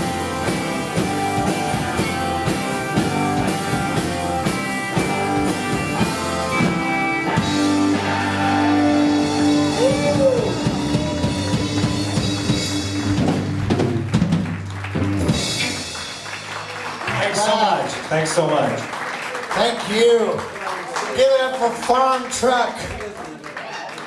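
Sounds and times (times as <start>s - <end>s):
drum kit: 0.0s - 18.1s
electric guitar: 0.0s - 18.1s.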